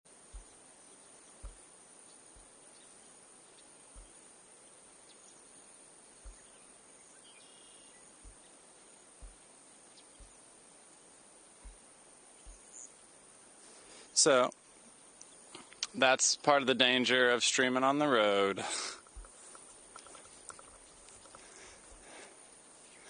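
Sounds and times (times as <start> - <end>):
soft low thumps: 0.1 - 0.7, 1.4 - 2.6, 3.9 - 4.2, 6.2 - 6.6, 8.2 - 10.5, 11.6 - 12.8, 19.1 - 19.5
faint outdoor hiss: 0.1 - 23.0.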